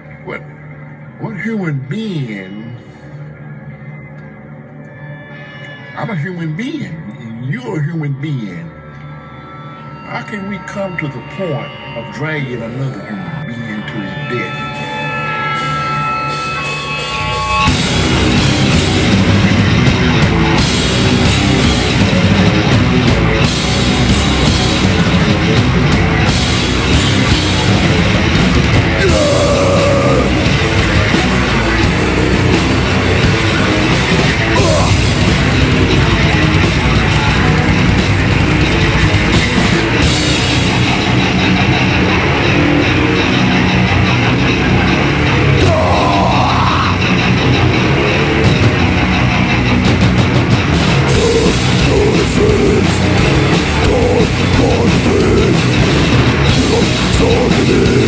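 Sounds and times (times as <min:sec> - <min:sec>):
sustained tones: 0:02.3 - 0:58.0
heavy metal band playing: 0:14.1 - 0:58.0.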